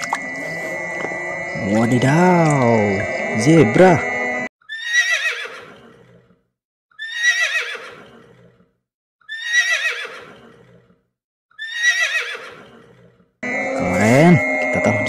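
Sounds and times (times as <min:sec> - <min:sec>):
high quavering whinny: 0:00.0 - 0:04.5, 0:13.4 - 0:15.0.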